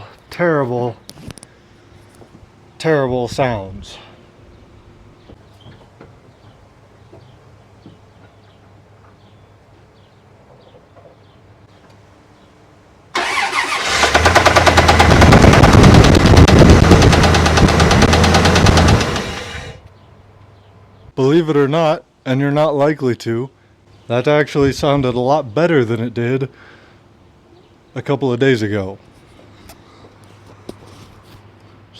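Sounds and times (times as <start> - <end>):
engine with rapid knocking: 13.2 - 19.8.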